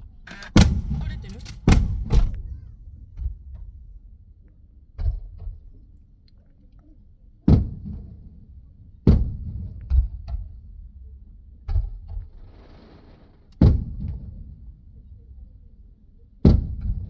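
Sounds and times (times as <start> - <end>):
muffled fireworks booming: 0.3 - 3.9.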